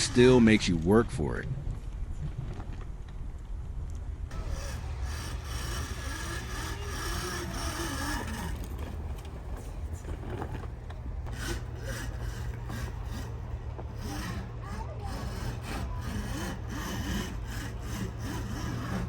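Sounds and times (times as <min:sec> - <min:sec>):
chain and tyres scraping snow: 0:04.3 - 0:19.0
electric motor whine: 0:04.3 - 0:19.0.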